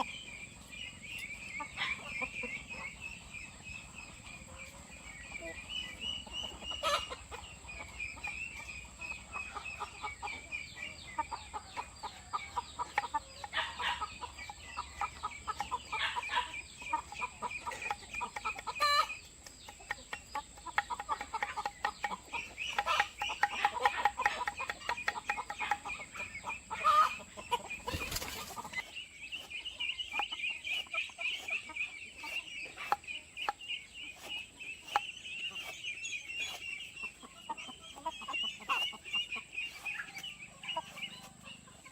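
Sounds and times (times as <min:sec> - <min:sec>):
hens clucking: 0:00.0 - 0:41.9.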